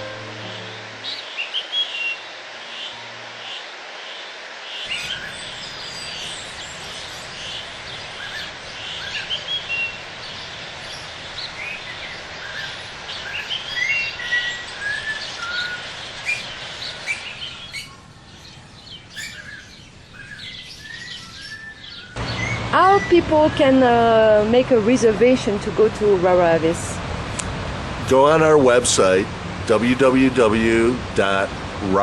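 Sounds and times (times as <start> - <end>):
steady background hiss: 0.0 - 32.0
birds chirping and calling: 4.7 - 24.1.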